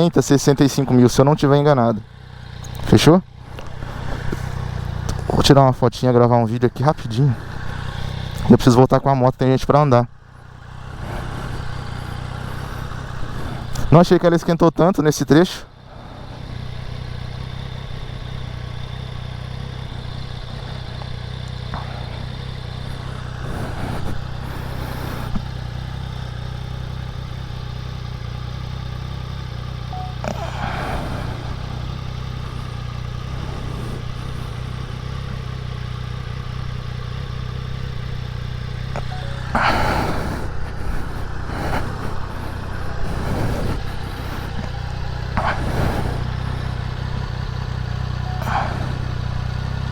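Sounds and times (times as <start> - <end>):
motorcycle engine idling: 0.0 - 49.9
passing noise: 30.0 - 32.8, 39.0 - 44.8.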